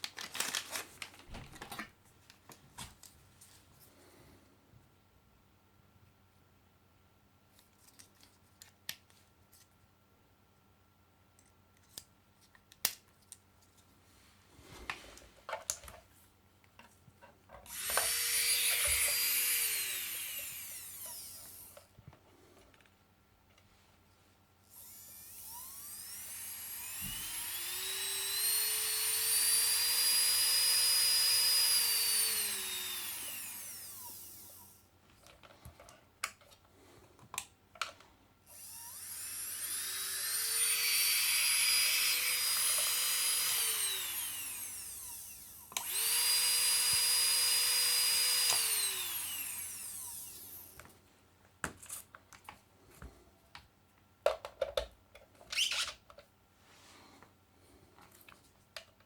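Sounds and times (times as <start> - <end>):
nail drill motor whining: 17.7 - 21.9, 24.7 - 34.8, 38.5 - 50.8.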